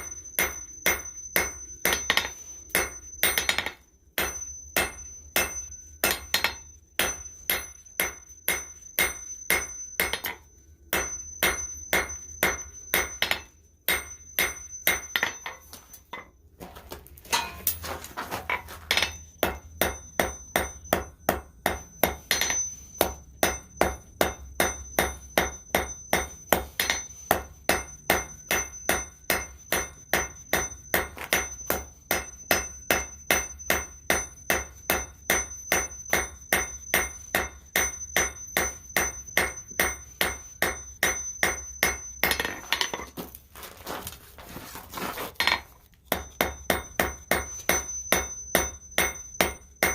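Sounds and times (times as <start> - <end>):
hammer striking steel on anvil: 0.0 - 43.3, 45.4 - 49.9.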